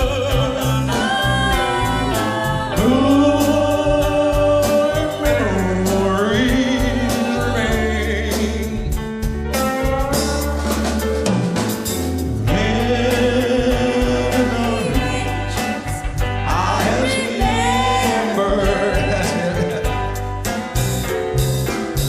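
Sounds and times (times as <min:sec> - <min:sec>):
held singing voices: 0:00.0 - 0:09.0, 0:12.4 - 0:20.0
lead singer singing: 0:00.0 - 0:09.0, 0:12.4 - 0:20.2
live band playing country ballad: 0:00.0 - 0:22.0.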